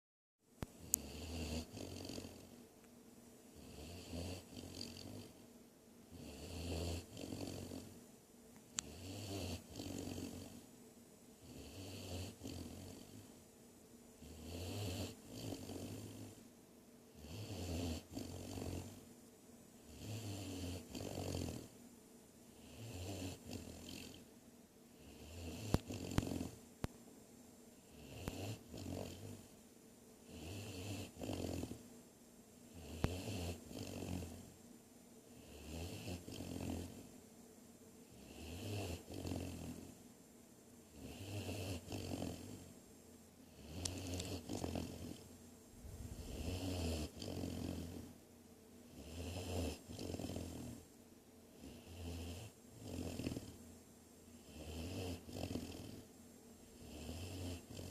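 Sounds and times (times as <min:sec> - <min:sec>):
puppy snoring: 0:00.6 - 0:02.6, 0:03.5 - 0:05.5, 0:06.1 - 0:08.0, 0:08.7 - 0:10.8, 0:11.4 - 0:13.4, 0:14.2 - 0:16.5, 0:17.1 - 0:19.1, 0:19.8 - 0:21.8, 0:22.5 - 0:24.3, 0:24.9 - 0:26.7, 0:27.8 - 0:29.6, 0:30.2 - 0:31.9, 0:32.7 - 0:34.6, 0:35.3 - 0:37.2, 0:38.0 - 0:40.1, 0:40.8 - 0:42.8, 0:43.4 - 0:48.2, 0:48.8 - 0:53.7, 0:54.3 - 0:57.9.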